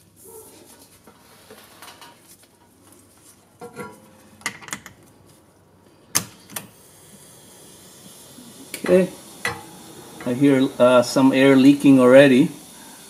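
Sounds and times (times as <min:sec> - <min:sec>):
faint air hiss: 0:05.6 - 0:13.0.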